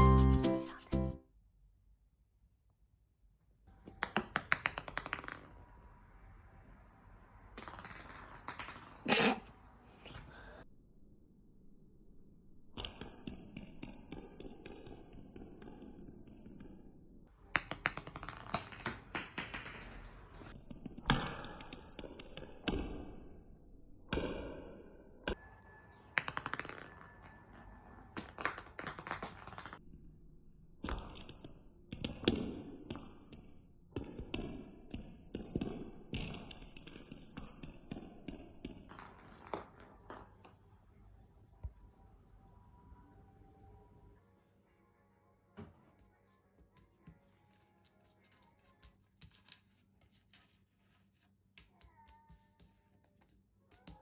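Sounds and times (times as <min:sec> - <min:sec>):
ball tapping and bouncing on floor: 0:03.8 - 0:05.9, 0:07.5 - 0:09.5, 0:17.5 - 0:23.3, 0:26.0 - 0:29.8, 0:30.8 - 0:40.6, 0:45.6 - 0:54.0.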